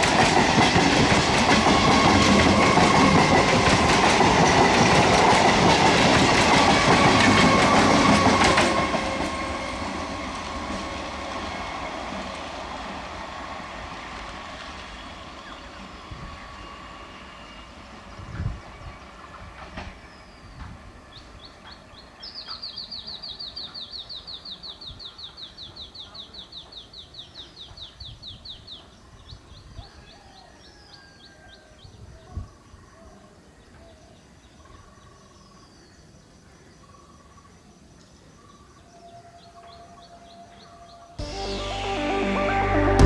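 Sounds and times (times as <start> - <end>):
distant electric train rumbling: 0.0 - 27.0
bird calls: 18.6 - 36.2
music: 41.2 - 43.0.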